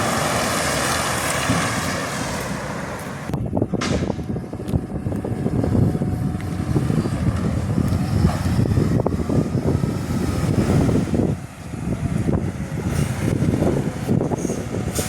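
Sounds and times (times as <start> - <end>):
garbage truck engine rumble: 0.0 - 15.0
rattles and knocks: 3.7 - 4.3.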